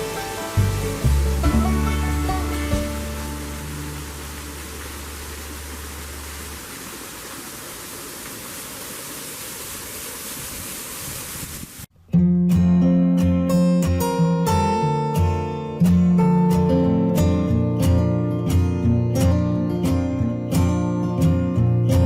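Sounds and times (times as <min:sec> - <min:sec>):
acoustic guitar strumming: 0:00.0 - 0:05.1, 0:12.0 - 0:22.0
low music hum: 0:00.0 - 0:06.6
water rushing over waterfall: 0:00.0 - 0:11.9.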